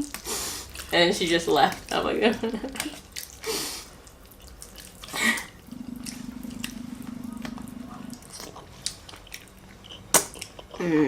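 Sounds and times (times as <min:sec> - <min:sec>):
slurping spaghetti: 0:03.0 - 0:10.6
steady low hum: 0:05.1 - 0:10.0.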